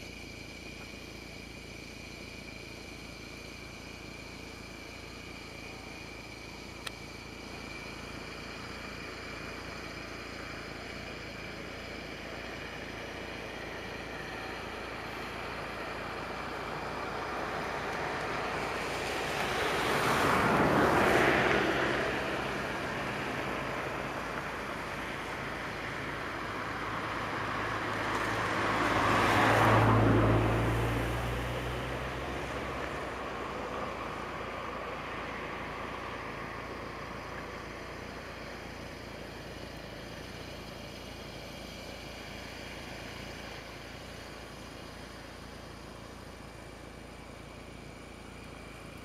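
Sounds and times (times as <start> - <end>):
insects chirping: 0.0 - 49.0
vehicle passing: 13.4 - 38.6.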